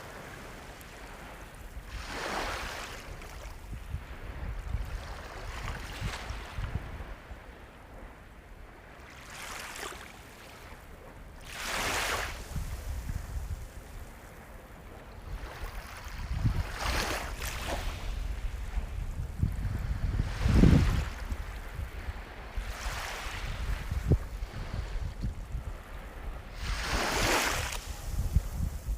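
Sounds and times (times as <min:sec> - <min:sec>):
sea waves breaking: 0:00.0 - 0:03.6, 0:09.0 - 0:13.4, 0:15.2 - 0:19.0, 0:19.8 - 0:28.9
low rumble of surf: 0:00.0 - 0:28.9.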